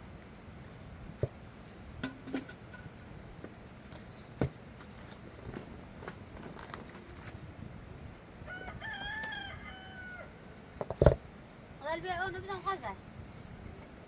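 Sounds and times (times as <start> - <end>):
rooster crowing: 8.4 - 10.4.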